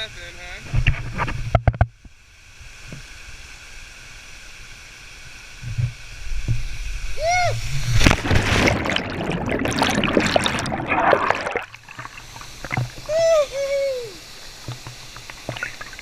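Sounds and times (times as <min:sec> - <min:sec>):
water splashing and sloshing: 0:05.6 - 0:13.2, 0:14.2 - 0:16.0
person whooping: 0:07.2 - 0:07.6, 0:13.1 - 0:14.2.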